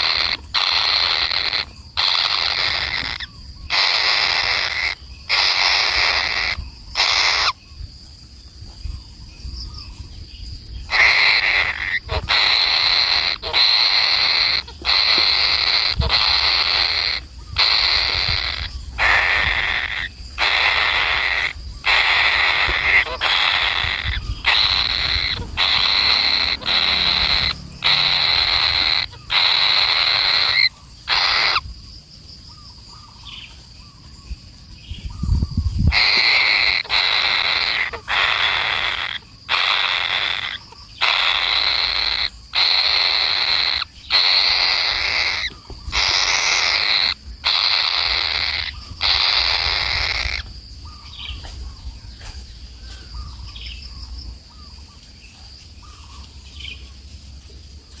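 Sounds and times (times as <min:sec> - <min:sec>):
bird rasping calls: 0:00.0 - 0:07.6, 0:10.8 - 0:31.7, 0:35.2 - 0:52.3.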